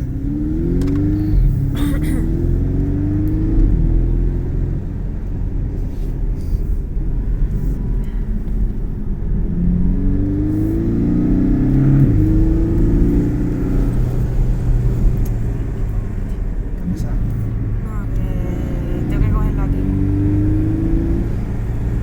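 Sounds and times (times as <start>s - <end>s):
car engine pulling under load: 0.0s - 9.1s
low road rumble: 0.0s - 22.0s.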